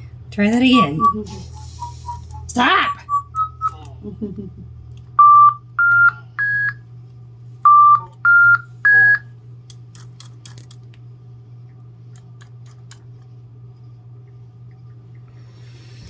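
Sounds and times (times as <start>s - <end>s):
three-note electronic beeps: 0.4s - 3.8s, 5.2s - 6.8s, 7.7s - 9.2s.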